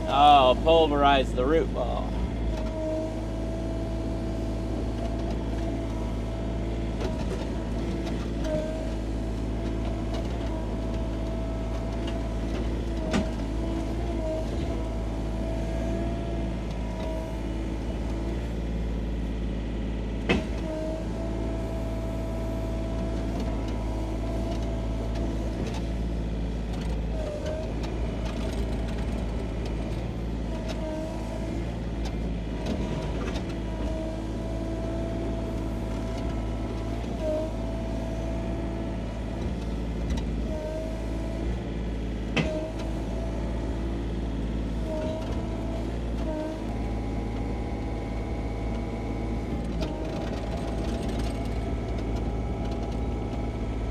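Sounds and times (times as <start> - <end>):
excavator engine hum and whine: 0.0 - 53.9.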